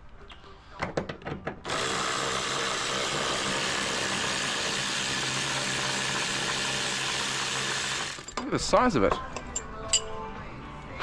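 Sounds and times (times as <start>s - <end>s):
power tool running: 1.7s - 8.4s.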